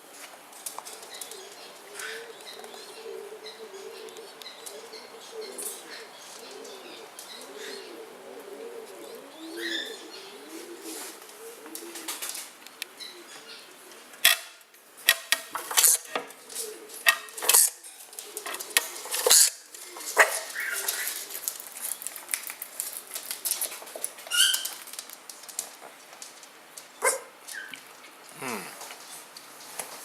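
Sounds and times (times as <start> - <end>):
pigeon calls: 1.2 - 12.4, 15.0 - 22.1
pigeons knocking and clattering: 15.0 - 26.9.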